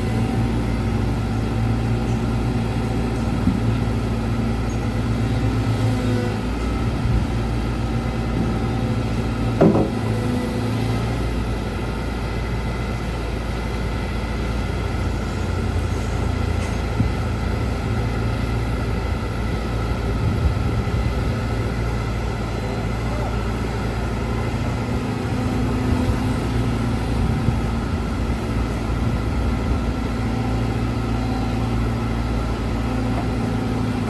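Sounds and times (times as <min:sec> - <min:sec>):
excavator diesel engine running: 0:00.0 - 0:34.0
sharp knock: 0:09.6 - 0:10.0.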